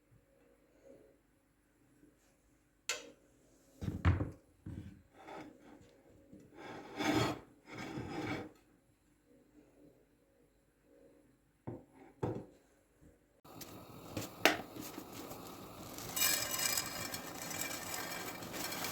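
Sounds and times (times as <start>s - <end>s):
kitchen scraping: 13.5s - 18.9s.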